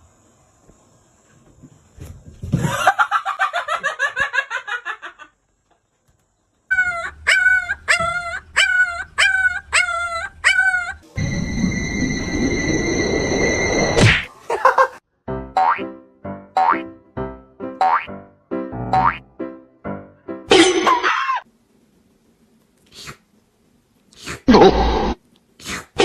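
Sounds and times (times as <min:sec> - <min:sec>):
small dog yipping: 0:06.7 - 0:11.0.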